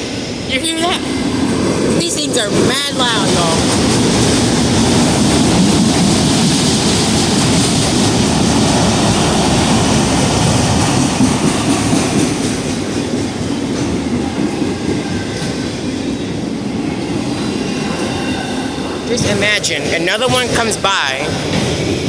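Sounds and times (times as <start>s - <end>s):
freight train wheels rumbling on rail: 0.0s - 22.0s.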